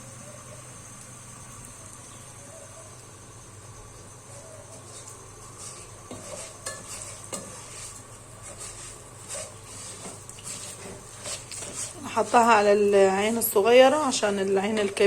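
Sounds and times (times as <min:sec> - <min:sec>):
frying sizzle: 0:00.0 - 0:15.0
spoon scraping in a pot: 0:04.9 - 0:12.8.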